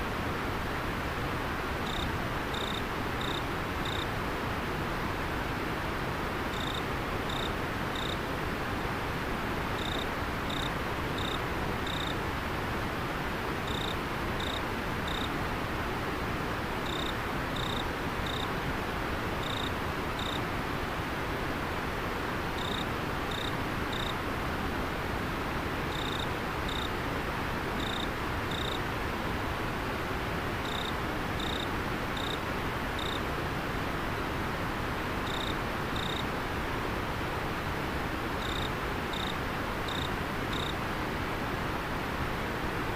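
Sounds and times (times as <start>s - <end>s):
cricket chirping: 1.8s - 4.1s, 6.5s - 8.2s, 9.8s - 12.2s, 13.7s - 15.3s, 16.8s - 18.5s, 19.4s - 20.4s, 22.6s - 24.2s, 25.9s - 26.9s, 27.8s - 28.8s, 30.6s - 32.4s, 33.0s - 33.2s, 35.2s - 36.2s, 38.4s - 40.8s.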